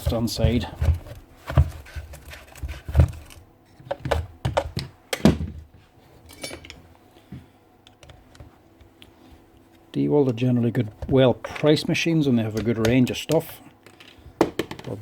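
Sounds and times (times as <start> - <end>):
hard objects knocking and clicking: 0.0 - 5.6, 12.5 - 15.0.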